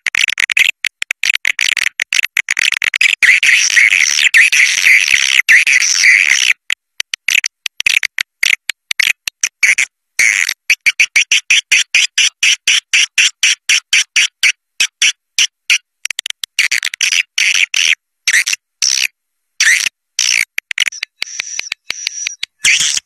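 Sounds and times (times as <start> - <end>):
high buzzy bird chirps: 19.6 - 23.0.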